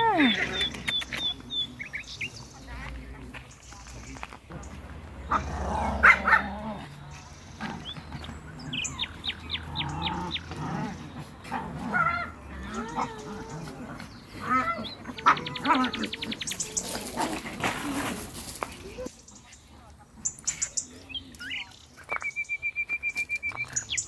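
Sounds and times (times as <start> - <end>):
small dogs barking and yelping: 0.0 - 2.3, 4.5 - 19.1
birds chirping: 0.0 - 24.0.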